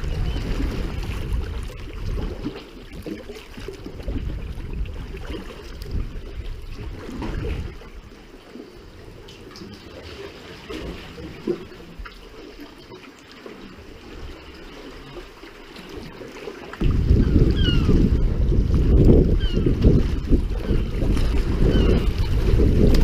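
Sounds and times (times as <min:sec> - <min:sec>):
water trickling and splashing: 0:00.0 - 0:23.0
low rumble: 0:16.8 - 0:23.0.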